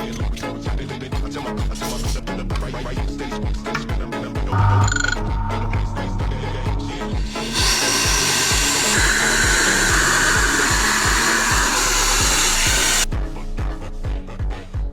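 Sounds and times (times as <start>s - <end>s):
background music with steady beat: 0.0s - 14.9s
high-pitched whine: 4.5s - 13.1s
electric air blower rushing: 6.9s - 13.1s.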